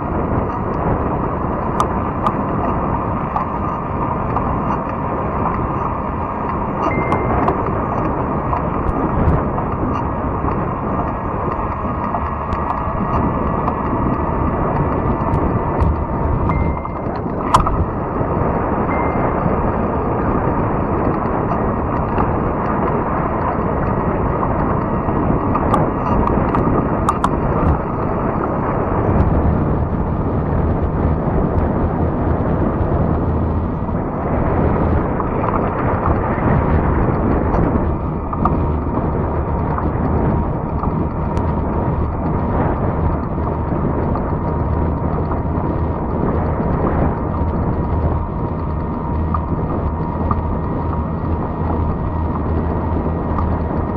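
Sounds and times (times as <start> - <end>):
bike tires rolling on trail: 0.0 - 53.9
wind on microphone: 0.0 - 53.9
sharp ticks: 0.2 - 53.9.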